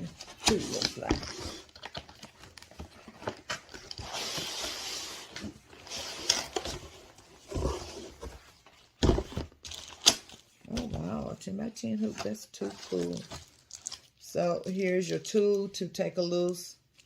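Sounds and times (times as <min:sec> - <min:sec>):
packaging rustling: 0:00.0 - 0:10.8, 0:12.0 - 0:14.2.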